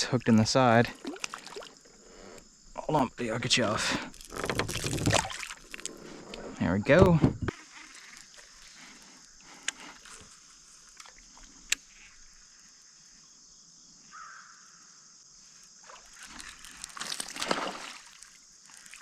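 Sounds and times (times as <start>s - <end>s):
water splashing: 0.0s - 6.3s, 15.8s - 19.0s
water lapping against a kayak: 0.0s - 12.5s, 15.8s - 19.0s.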